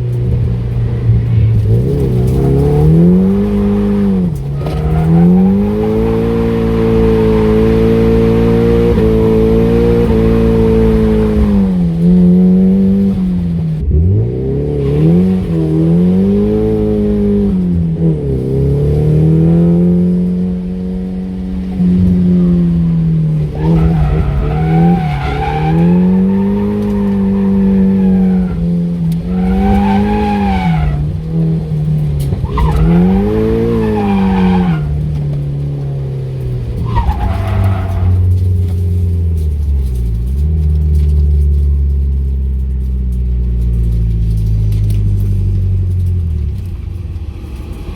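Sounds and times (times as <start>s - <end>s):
car engine revving: 0.0s - 47.9s
tyres squealing: 1.0s - 13.1s, 21.4s - 39.3s.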